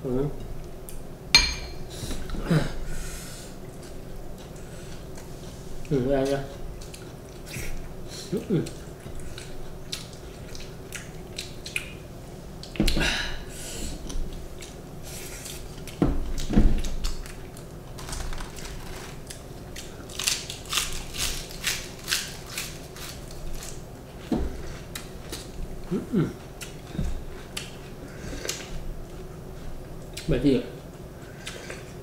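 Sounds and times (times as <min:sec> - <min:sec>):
people chewing and crunching food: 0:01.9 - 0:32.0
crisp crackles: 0:17.9 - 0:23.8.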